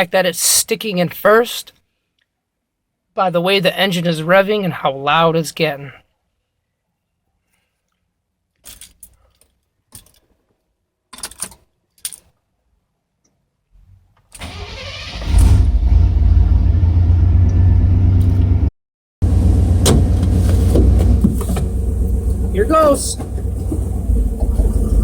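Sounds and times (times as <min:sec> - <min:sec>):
truck engine starting and running: 0:14.4 - 0:25.0.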